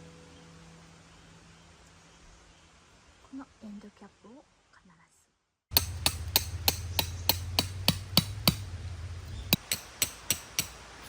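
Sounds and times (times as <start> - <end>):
hammer striking tent peg: 5.7 - 11.0.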